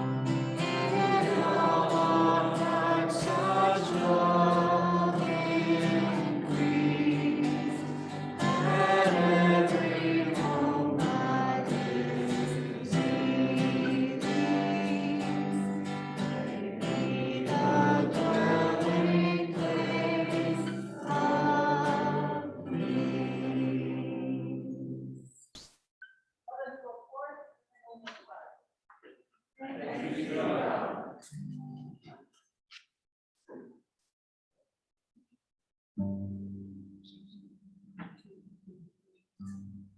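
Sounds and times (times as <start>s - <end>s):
choir singing church music: 0.0s - 25.3s, 29.6s - 31.3s.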